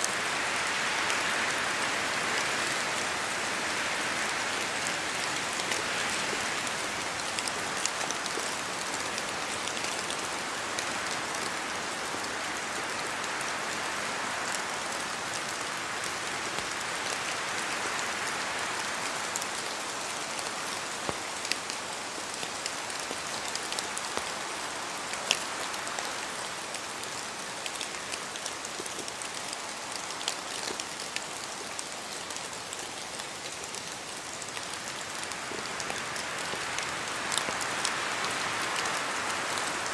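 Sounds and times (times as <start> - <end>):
rain in a forest: 0.0 - 39.9.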